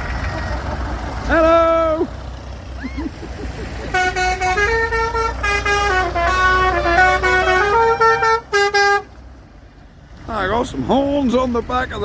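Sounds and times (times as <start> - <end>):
tractor engine rumble: 0.0 - 12.0
musical horns playing tune: 3.9 - 9.1.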